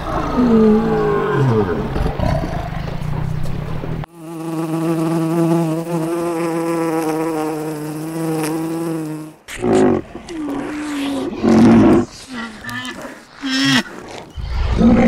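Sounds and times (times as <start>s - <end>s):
honeybees buzzing: 4.0s - 9.5s.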